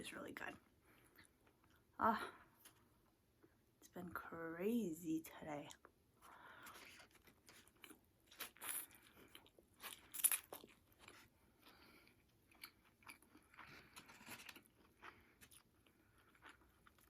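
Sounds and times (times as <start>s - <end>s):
person chewing crunchy food: 6.6s - 17.0s.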